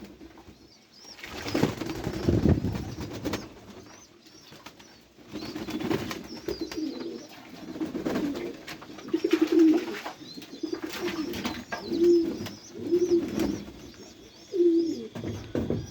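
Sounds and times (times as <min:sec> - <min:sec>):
pigeons cooing: 0:01.2 - 0:15.9
faint high chirps: 0:10.2 - 0:15.9.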